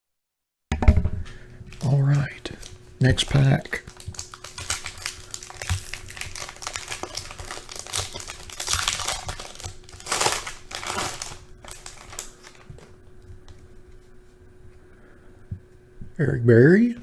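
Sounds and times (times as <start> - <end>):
foil wrapper crinkling: 1.7 - 13.0.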